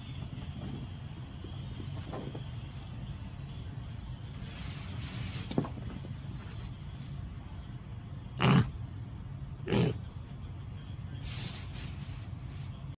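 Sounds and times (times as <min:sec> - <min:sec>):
steady low hum: 0:00.0 - 0:13.0
piglet grunting: 0:08.4 - 0:08.8, 0:09.6 - 0:10.0.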